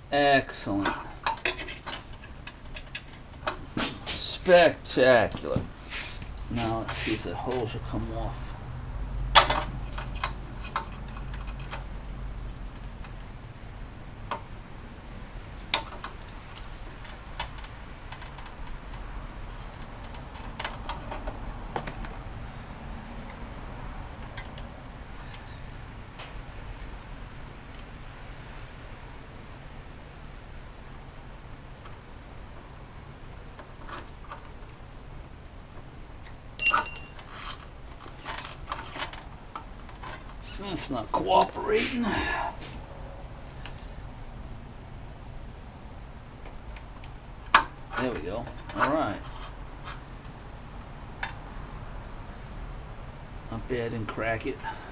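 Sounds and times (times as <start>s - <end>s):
steady low hum: 0.0s - 54.9s
short scraping rustle: 5.7s - 7.3s, 37.2s - 39.2s
clicks of metal parts and tools: 9.4s - 11.8s, 36.6s - 40.3s
sharp ringing metal clink: 36.6s - 37.2s.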